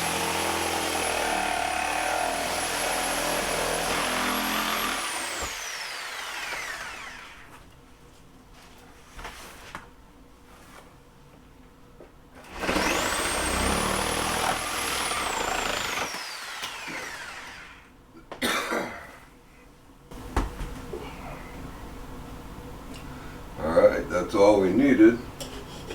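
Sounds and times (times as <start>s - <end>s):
power saw cutting: 0.0s - 7.5s, 12.5s - 17.9s.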